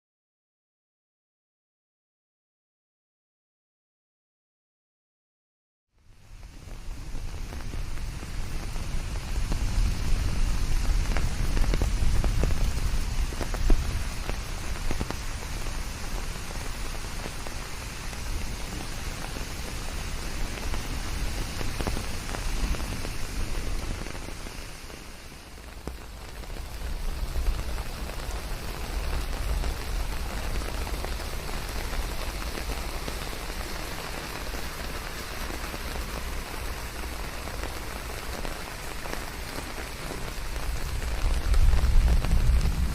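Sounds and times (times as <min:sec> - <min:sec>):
steady rain: 0:05.9 - 0:42.9
low rumble: 0:40.8 - 0:42.9.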